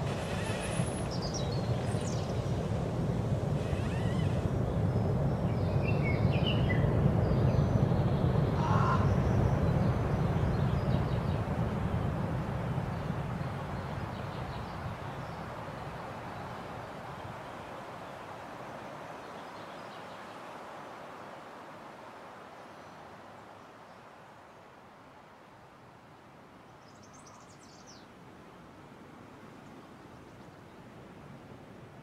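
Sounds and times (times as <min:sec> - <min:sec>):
bird calls: 0:00.0 - 0:02.4, 0:03.6 - 0:04.5, 0:05.5 - 0:11.4.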